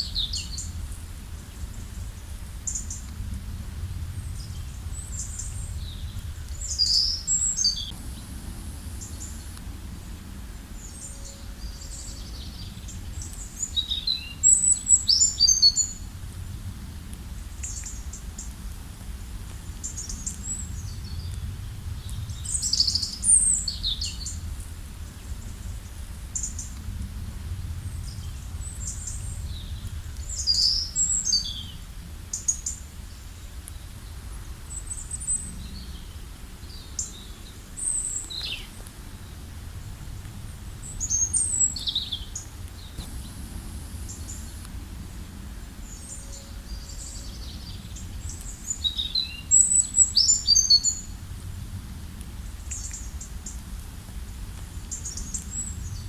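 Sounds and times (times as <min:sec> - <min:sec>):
songbirds chirping: 0:04.0 - 0:16.2, 0:19.5 - 0:51.2.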